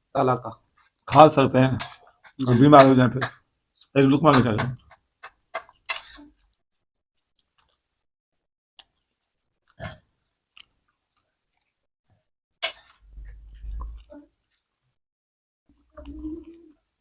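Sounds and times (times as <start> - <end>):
person chewing food: 7.4 - 7.9, 10.5 - 11.8, 12.6 - 14.6.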